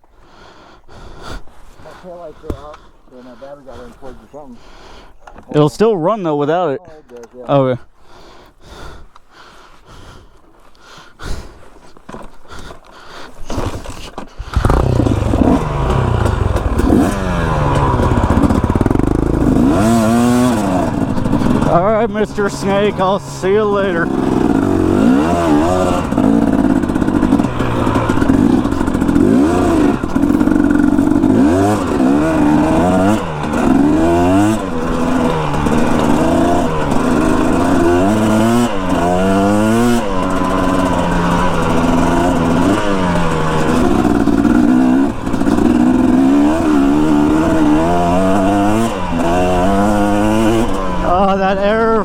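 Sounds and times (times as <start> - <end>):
dirt bike engine revving: 13.5 - 52.0.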